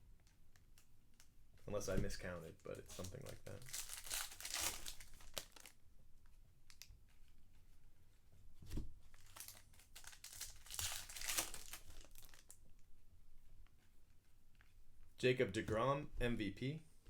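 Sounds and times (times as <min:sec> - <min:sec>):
wrappers crinkling and tearing: 0:02.9 - 0:05.8, 0:09.2 - 0:12.6.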